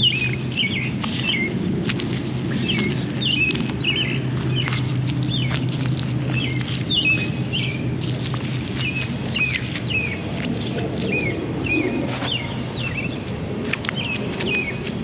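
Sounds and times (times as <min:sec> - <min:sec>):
hand patting wet mud: 0:00.0 - 0:15.0
small birds chirping: 0:00.0 - 0:15.0.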